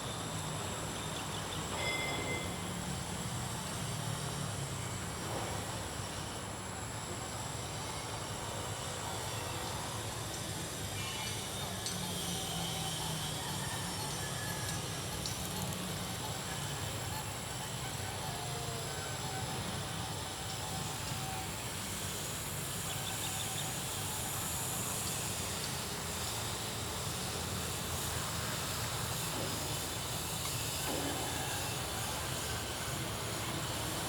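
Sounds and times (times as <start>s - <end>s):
model plane electric motors whining: 7.6s - 34.0s.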